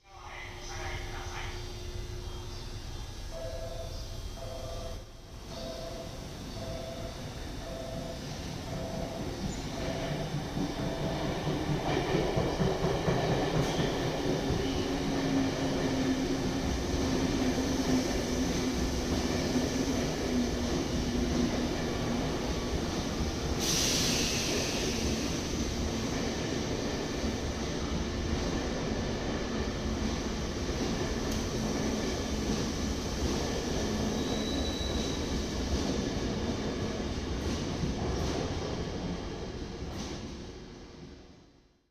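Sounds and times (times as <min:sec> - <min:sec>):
train wheels rolling on rails: 0:05.4 - 0:41.3
loud hiss: 0:23.4 - 0:25.7.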